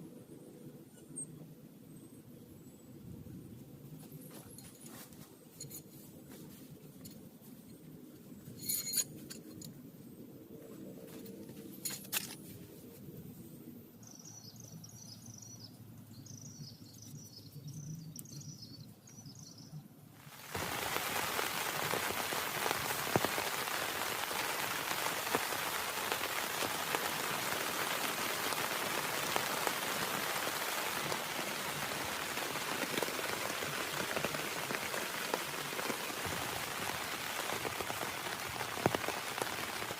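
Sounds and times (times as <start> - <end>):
heavy rain: 20.2 - 39.9.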